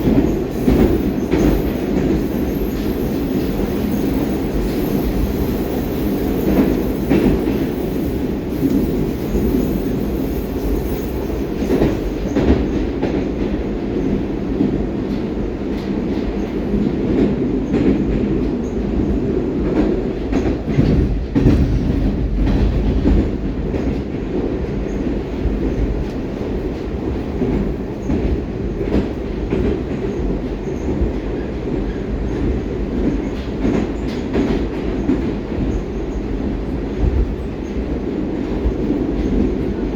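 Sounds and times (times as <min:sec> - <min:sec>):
wheels clacking on track: 0:00.0 - 0:18.8
train wheels rumbling: 0:00.0 - 0:39.9.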